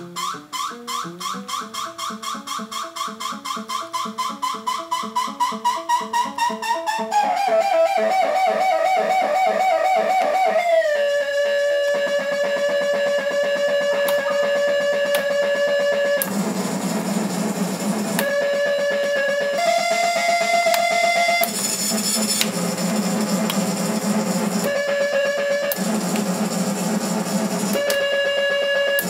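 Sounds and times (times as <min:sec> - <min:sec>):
electronic keyboard tones: 0:00.0 - 0:29.0
low rough buzz: 0:10.8 - 0:29.0.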